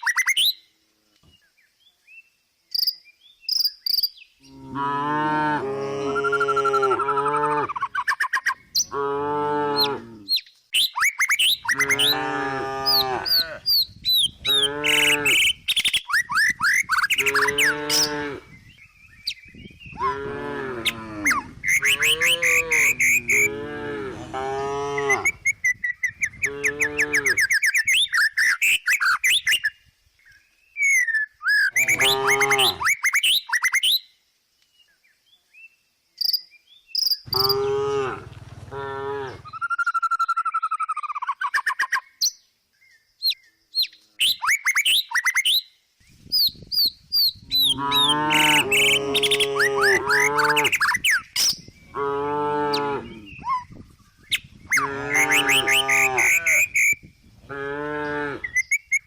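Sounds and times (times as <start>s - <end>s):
cow mooing: 4.5s - 7.7s, 8.9s - 10.3s, 11.7s - 13.6s, 14.5s - 15.4s, 17.2s - 18.5s, 20.0s - 25.4s, 31.8s - 32.8s, 37.3s - 39.5s, 47.7s - 50.8s, 51.9s - 53.3s, 54.8s - 56.8s, 57.5s - 58.6s
birds chirping: 5.9s - 33.9s, 36.2s - 59.0s.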